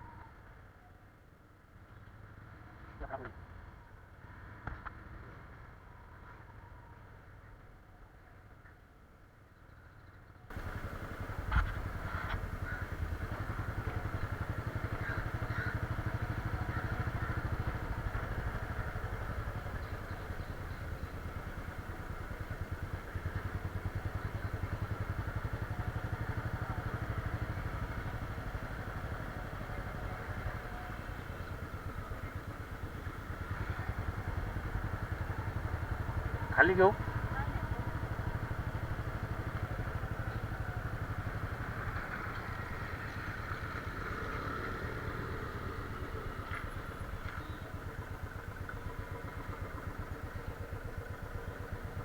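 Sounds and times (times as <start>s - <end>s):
motorcycle engine running: 10.5s - 52.0s.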